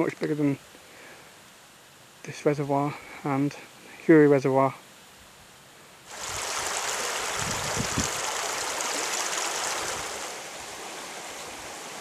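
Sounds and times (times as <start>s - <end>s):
heavy rain on trees and grass: 6.1s - 12.0s
stream running over stones: 6.1s - 12.0s.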